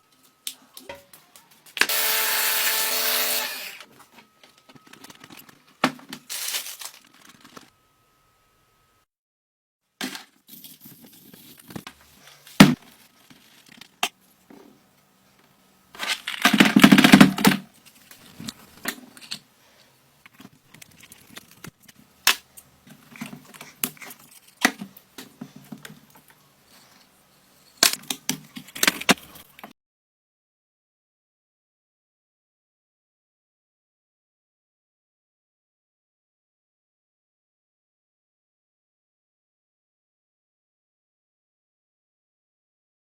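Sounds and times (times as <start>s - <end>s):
loud rasping burst: 1.9s - 3.8s.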